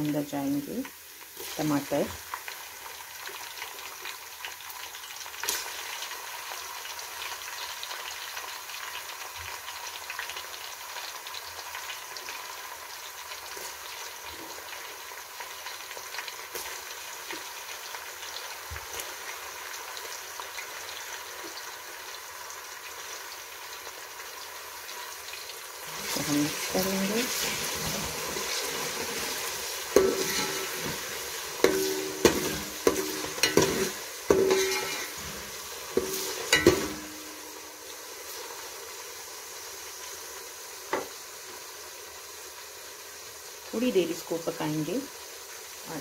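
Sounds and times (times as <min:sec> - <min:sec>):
tomatoes sizzling in hot oil: 0:00.0 - 0:46.0
spoon clicking on a pan: 0:31.6 - 0:35.2, 0:36.0 - 0:37.5.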